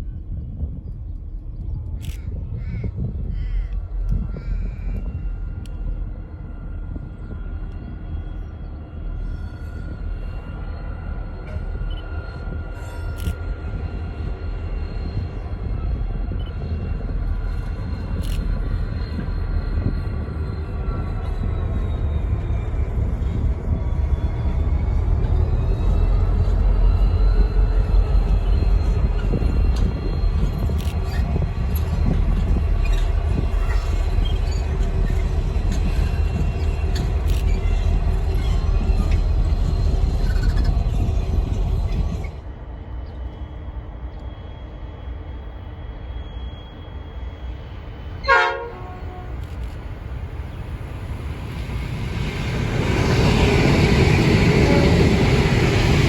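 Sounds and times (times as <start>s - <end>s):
train rumbling past: 0.0s - 56.0s
wheel squeal: 27.0s - 42.4s
sharp train horn toot: 48.2s - 49.4s.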